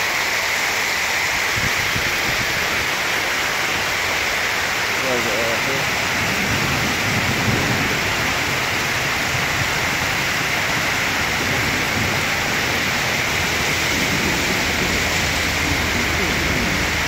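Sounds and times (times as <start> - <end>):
heavy rain on street: 0.0 - 17.0.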